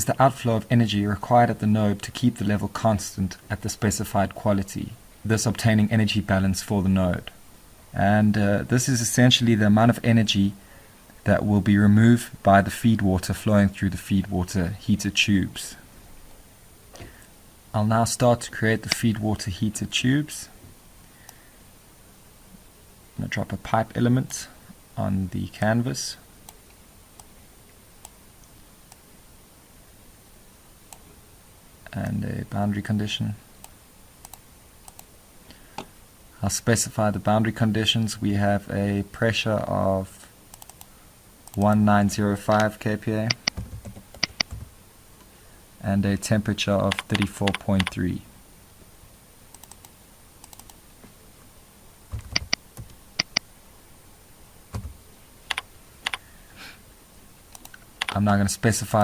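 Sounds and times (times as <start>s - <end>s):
low hiss: 0.0s - 59.0s
thin steady high whine: 0.0s - 59.0s
computer mouse clicks: 33.6s - 35.1s, 40.5s - 41.8s, 43.3s - 44.7s, 46.9s - 48.0s, 49.5s - 50.8s, 52.1s - 53.5s, 55.5s - 56.2s, 57.5s - 58.2s
faint ticks: 33.6s - 35.9s, 49.5s - 50.8s.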